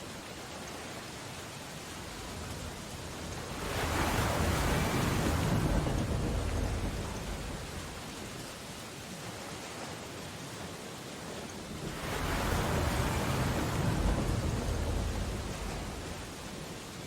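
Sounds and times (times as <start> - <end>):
ocean surf: 0.0 - 17.0
rain on window glass: 0.1 - 8.8, 11.4 - 17.0.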